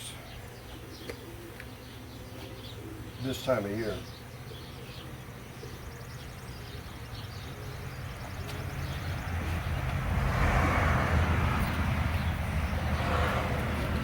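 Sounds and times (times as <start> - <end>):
vehicle engine approaching: 7.3 - 14.0.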